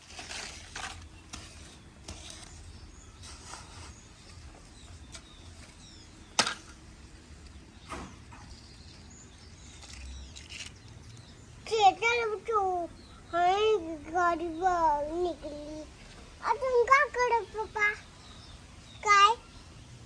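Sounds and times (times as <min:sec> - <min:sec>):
toy tractor scraping in mud: 0:00.0 - 0:07.6, 0:08.2 - 0:11.3.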